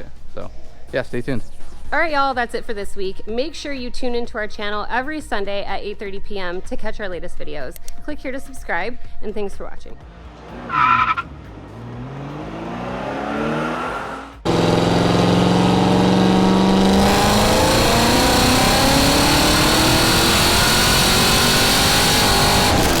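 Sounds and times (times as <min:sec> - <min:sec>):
car engine accelerating hard: 0:10.0 - 0:23.0
car engine revving: 0:10.0 - 0:23.0.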